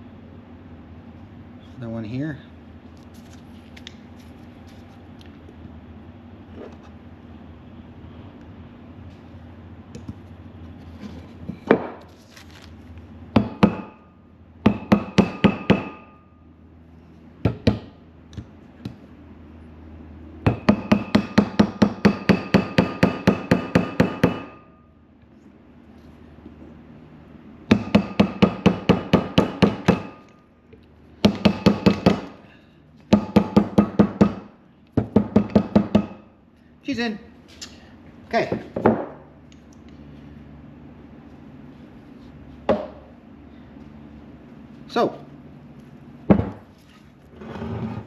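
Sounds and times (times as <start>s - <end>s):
hammer striking metal: 14.7s - 16.3s, 20.5s - 24.8s, 27.7s - 30.3s.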